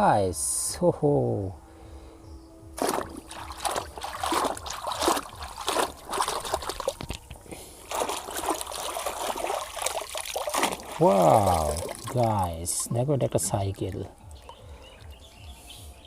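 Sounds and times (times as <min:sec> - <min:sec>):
water trickling and splashing: 0:02.8 - 0:15.3.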